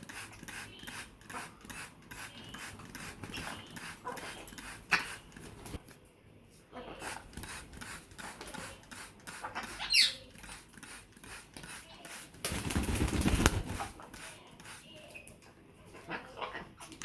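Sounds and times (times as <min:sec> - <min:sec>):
wing flapping and splashing: 0:12.4 - 0:14.1.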